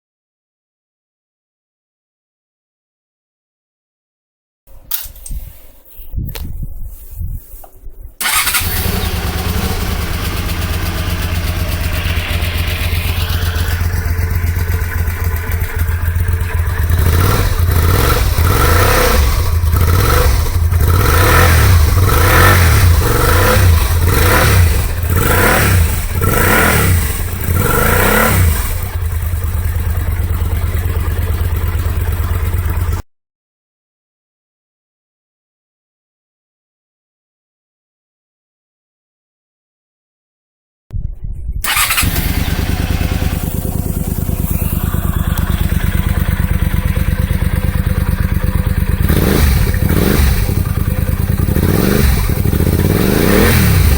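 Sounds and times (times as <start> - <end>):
motorcycle engine idling and revving: 8.2 - 33.0, 41.6 - 53.9.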